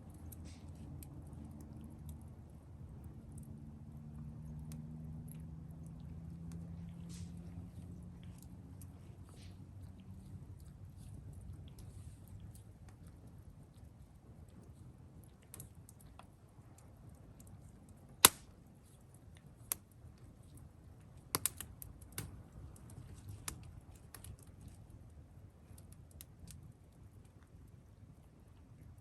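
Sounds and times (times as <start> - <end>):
faint low rumble: 0.0 - 29.0
campfire crackling: 16.7 - 25.1, 25.7 - 26.8.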